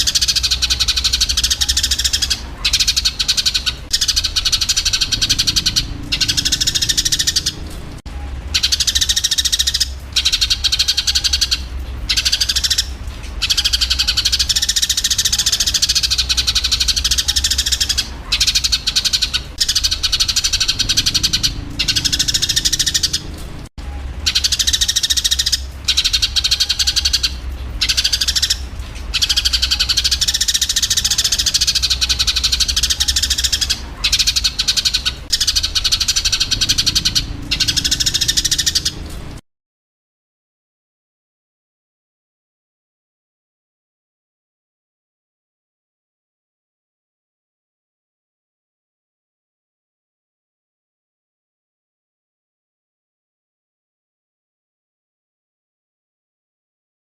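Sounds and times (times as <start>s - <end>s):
sparrows chattering: 0.0s - 39.4s
steady low hum: 0.0s - 39.4s.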